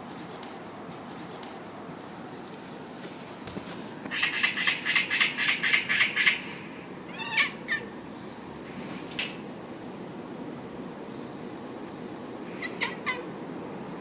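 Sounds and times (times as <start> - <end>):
cat chattering: 7.1 - 7.9, 12.5 - 13.4
cat chirp: 7.1 - 7.9, 12.5 - 13.3.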